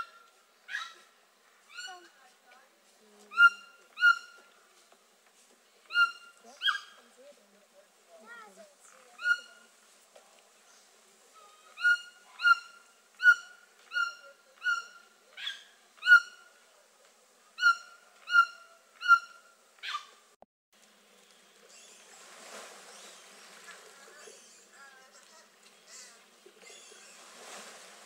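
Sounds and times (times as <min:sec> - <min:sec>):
bird calling: 0:00.0 - 0:02.2, 0:03.3 - 0:04.6, 0:05.8 - 0:07.1, 0:08.8 - 0:09.7, 0:11.4 - 0:16.6, 0:17.6 - 0:20.2, 0:22.8 - 0:27.5
faint hiss: 0:00.0 - 0:28.0.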